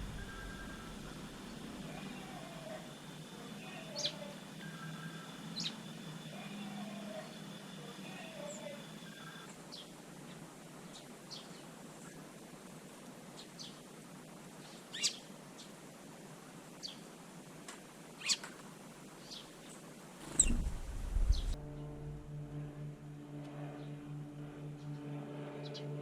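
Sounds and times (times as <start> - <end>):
wild birds calling: 0.0 - 11.7, 18.2 - 18.5, 19.2 - 21.6
faint steady background noise: 0.0 - 26.0.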